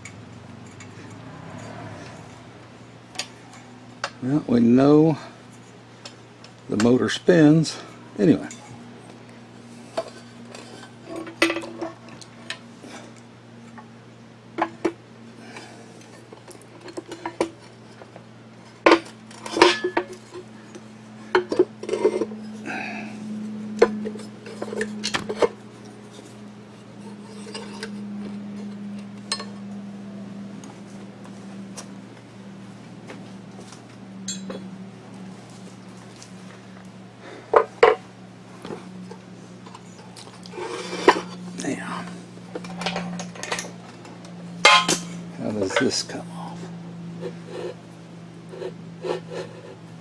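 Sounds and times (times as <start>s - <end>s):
steady low hum: 0.0s - 50.0s
metal parts clinking: 44.6s - 45.1s.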